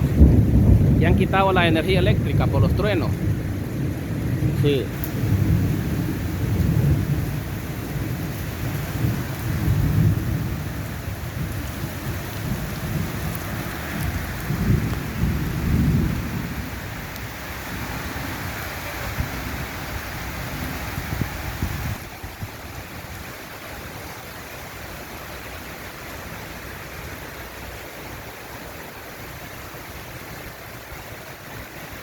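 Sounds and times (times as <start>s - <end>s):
thunder rumbling: 0.0s - 23.2s
heavy rain: 0.0s - 32.0s.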